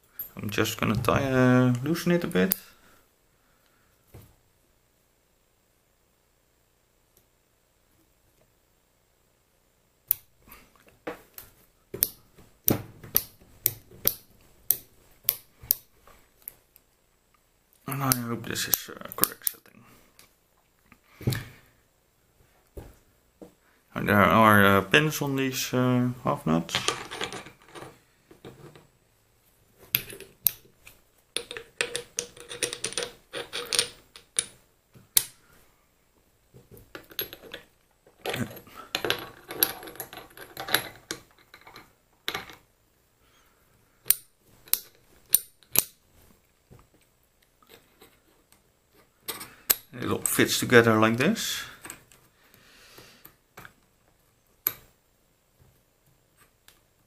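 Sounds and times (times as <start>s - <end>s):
small metal parts clicking: 31.4s - 34.6s, 36.9s - 42.6s
small steel parts clicking: 31.4s - 34.6s, 44.0s - 46.0s.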